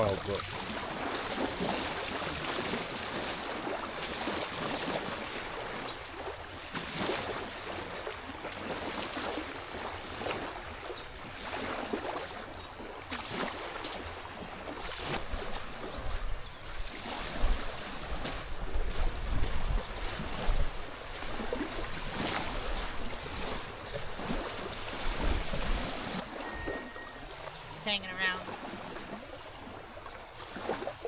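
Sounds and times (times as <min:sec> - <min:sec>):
small waves lapping on shore: 0:00.0 - 0:31.0
wind buffeting microphone: 0:15.2 - 0:27.8.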